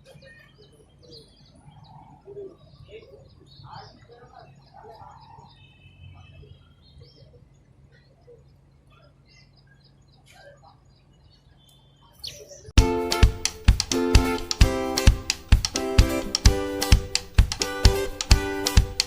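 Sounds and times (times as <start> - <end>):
small birds chirping: 0.0 - 19.0
loud music: 12.8 - 19.0.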